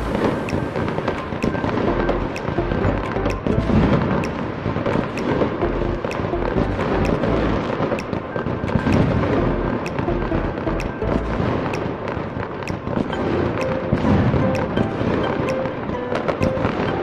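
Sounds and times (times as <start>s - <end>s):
fireworks bursting and crackling: 0.0s - 2.6s
music playing: 0.0s - 17.0s.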